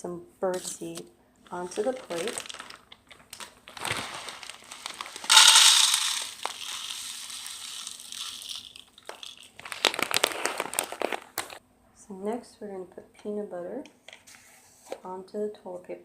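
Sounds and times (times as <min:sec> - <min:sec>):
crinkling and clicking: 0:01.5 - 0:07.1, 0:07.8 - 0:11.6
seeds pattering onto a plate: 0:01.8 - 0:11.6.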